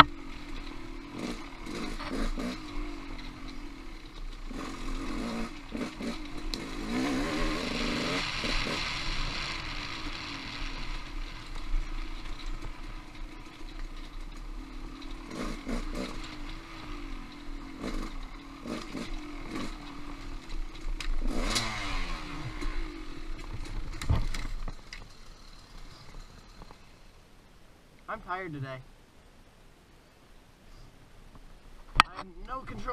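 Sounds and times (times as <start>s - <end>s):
off-road motorcycle engine: 0.0s - 27.5s
bike knocking on rocks: 23.4s - 25.1s.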